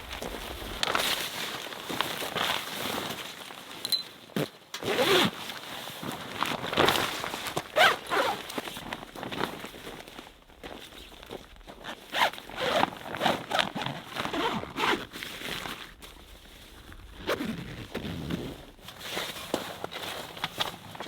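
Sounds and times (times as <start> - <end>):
zipper rasping: 4.9 - 5.3, 7.8 - 8.4, 12.1 - 15.1, 17.2 - 18.7.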